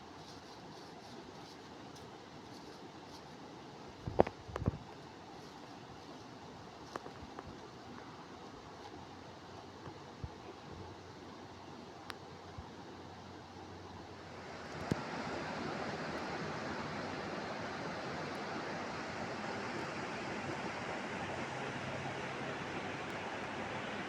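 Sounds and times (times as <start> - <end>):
flowing water rushing: 7.6 - 24.0.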